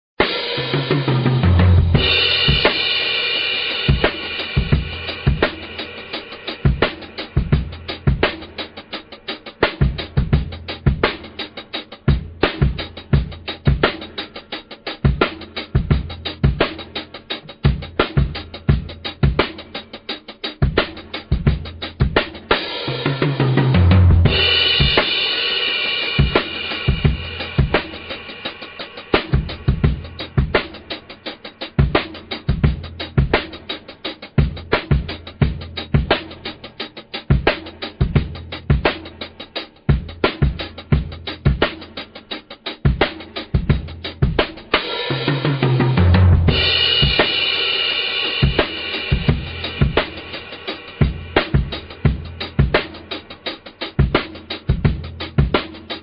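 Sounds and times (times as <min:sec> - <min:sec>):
music with drum beat: 0:00.2 - 0:56.0
sustained cymbal-like wash: 0:24.3 - 0:32.4.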